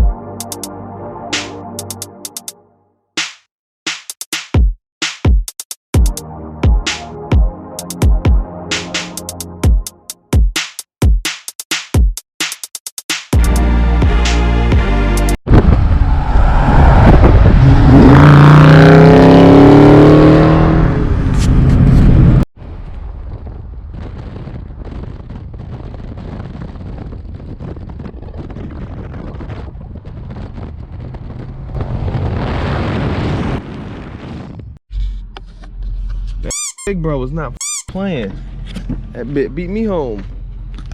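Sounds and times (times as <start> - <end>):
road noise: 15.5 - 24.0, 30.3 - 33.7, 34.9 - 40.9
car engine accelerating hard: 15.6 - 22.5.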